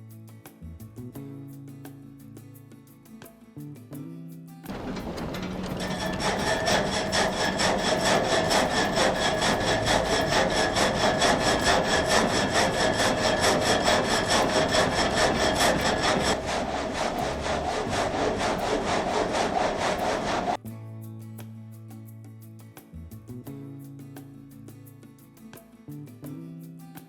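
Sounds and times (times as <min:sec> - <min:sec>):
frame saw cutting timber: 0:04.7 - 0:20.6.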